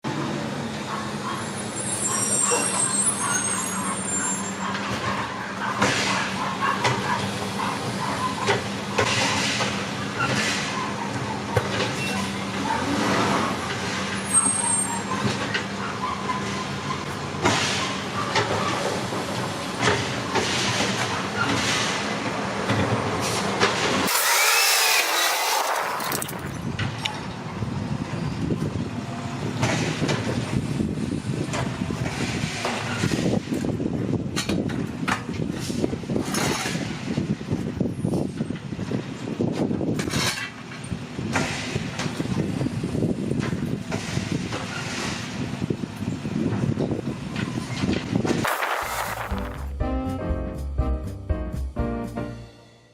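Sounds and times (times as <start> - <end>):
bins clanking and banging: 48.4 - 49.8.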